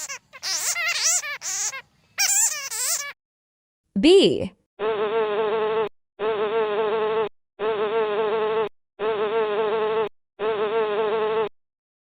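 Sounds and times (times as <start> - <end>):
bee buzzing: 0.0 - 3.0, 4.8 - 11.5.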